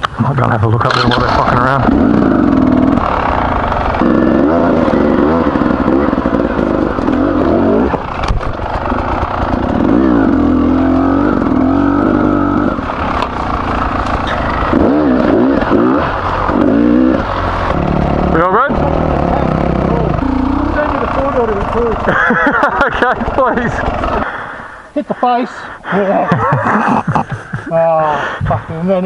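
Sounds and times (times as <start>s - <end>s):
motorcycle engine revving: 0.4s - 24.8s.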